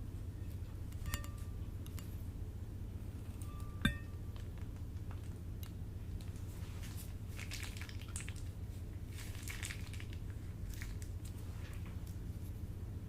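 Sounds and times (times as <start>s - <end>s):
steady low hum: 0.0s - 13.0s
crunchy crackling and squishing: 4.3s - 12.5s.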